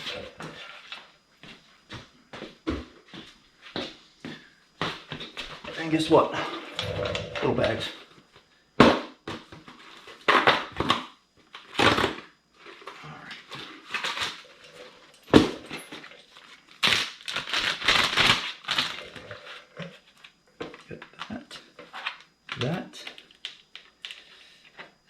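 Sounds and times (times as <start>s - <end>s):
plastic bags crinkling: 16.1s - 19.4s.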